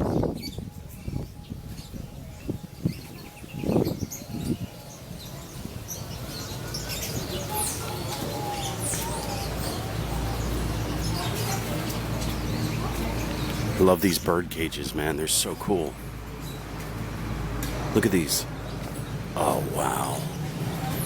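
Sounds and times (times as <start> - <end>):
songbirds chirping: 0.0 - 21.0
low background din: 19.4 - 20.5.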